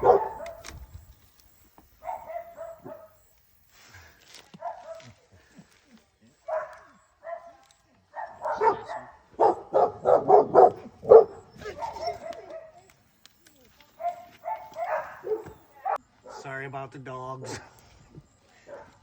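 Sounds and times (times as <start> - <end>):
dogs barking: 0.0 - 0.8, 2.0 - 3.2, 4.6 - 5.2, 6.4 - 12.9, 14.0 - 16.5, 18.6 - 19.0.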